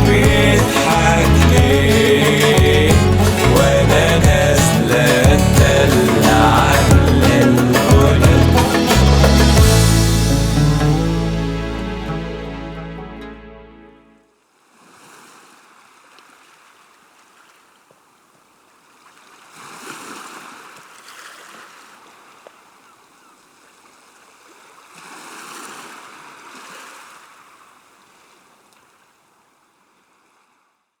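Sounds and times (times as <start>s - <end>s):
sea waves washing in: 0.0s - 12.1s.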